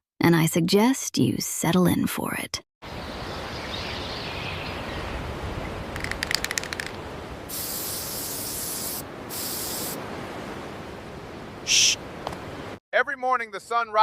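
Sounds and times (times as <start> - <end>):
spray can rattling when shaken: 6.0 - 9.9
steady background hiss: 6.8 - 12.8
aerosol spray hissing: 7.5 - 10.0.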